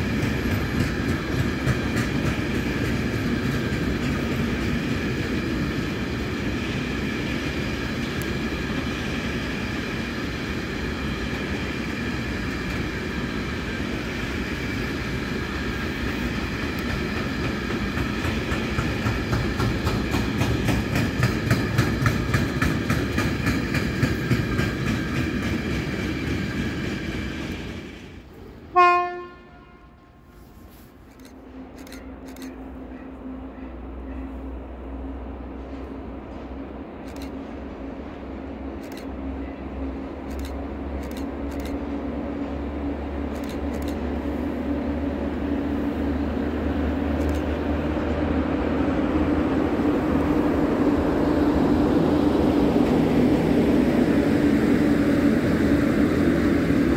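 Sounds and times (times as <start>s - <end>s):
wheels clicking over rail joints: 0.0s - 5.3s, 16.6s - 27.7s
locomotive horn blast: 28.7s - 30.5s.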